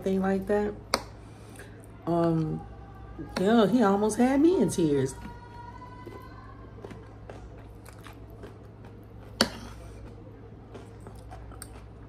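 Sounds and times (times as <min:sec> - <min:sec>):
chewing food: 0:05.2 - 0:12.0.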